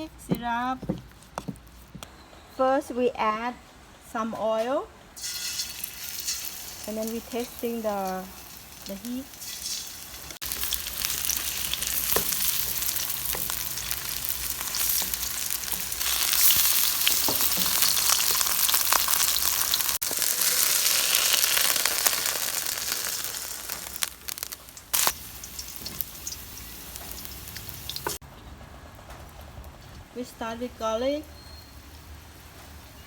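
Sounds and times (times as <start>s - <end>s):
chicken frying in hot oil: 5.2s - 28.2s.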